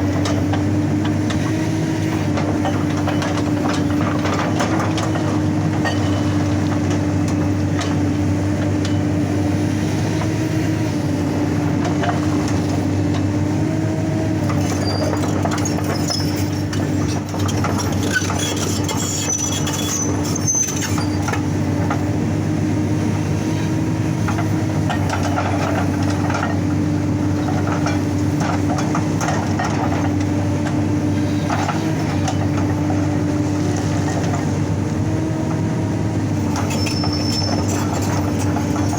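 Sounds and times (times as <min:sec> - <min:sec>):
excavator diesel engine: 0:00.0 - 0:38.9
high metallic squeals: 0:18.0 - 0:21.2, 0:36.6 - 0:38.1.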